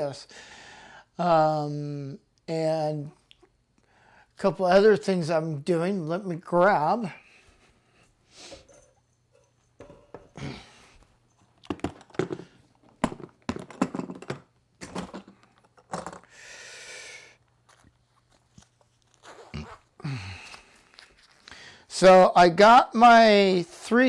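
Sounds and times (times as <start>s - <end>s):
objects knocking and clicking on table: 9.8s - 10.4s, 11.6s - 16.3s
bag rustling: 17.6s - 20.0s.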